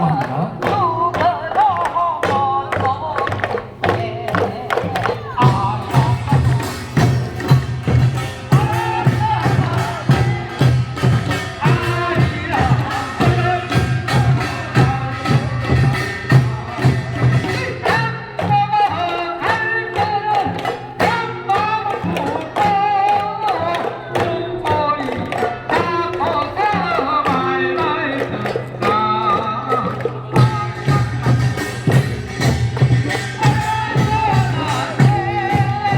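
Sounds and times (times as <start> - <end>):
folk singing: 0.0 - 35.9
percussion keeping rhythm: 0.0 - 35.9.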